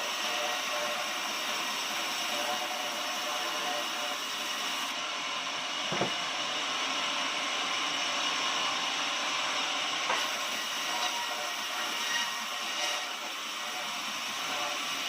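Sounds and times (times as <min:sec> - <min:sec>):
sawmill saw running: 0:00.0 - 0:15.0
knock: 0:05.9 - 0:06.2.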